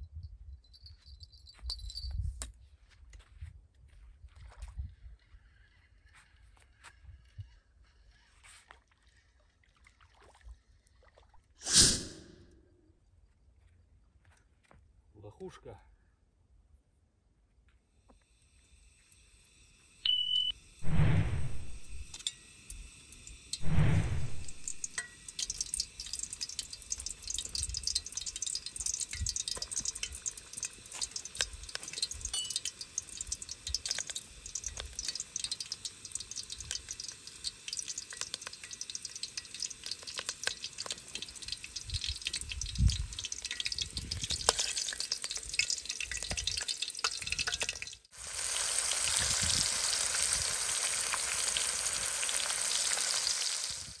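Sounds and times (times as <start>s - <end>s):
fish sizzling in pot: 17.9s - 54.0s
onions crackling in hot oil: 21.8s - 54.0s.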